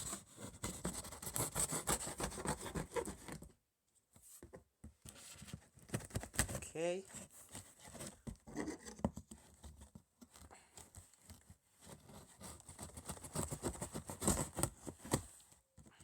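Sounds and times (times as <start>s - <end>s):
knife cutting cardboard: 0.0s - 3.5s, 5.8s - 15.3s
cardboard tearing: 11.9s - 15.3s.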